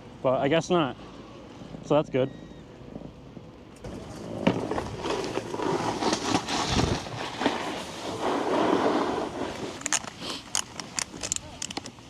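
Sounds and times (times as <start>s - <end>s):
snowboard scraping on snow: 3.9s - 10.5s
sharp clicks: 9.8s - 12.0s.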